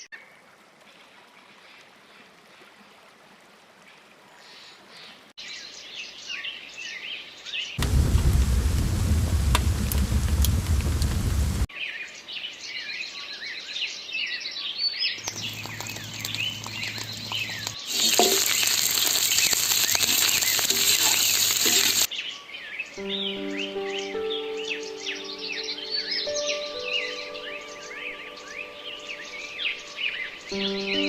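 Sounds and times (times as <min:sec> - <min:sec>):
small birds chirping: 0:04.3 - 0:31.0
loud rushing noise: 0:07.8 - 0:11.7
low hum: 0:07.8 - 0:11.7
steady musical tones: 0:23.0 - 0:31.0.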